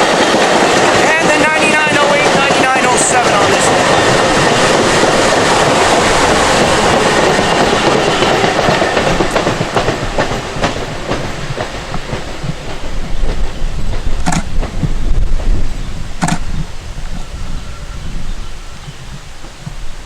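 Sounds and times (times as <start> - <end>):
wheels clacking over rail joints: 0.0 - 15.6
train wheel and rail rush: 0.0 - 20.0.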